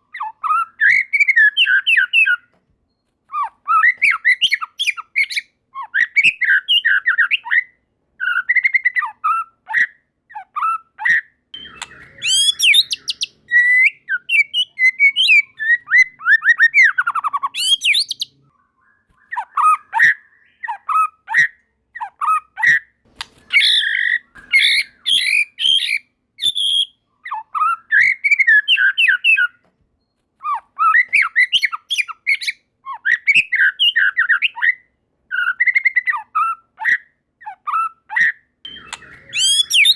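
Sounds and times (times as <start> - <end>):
bird singing: 0.0 - 2.5, 3.3 - 29.6, 30.4 - 39.9.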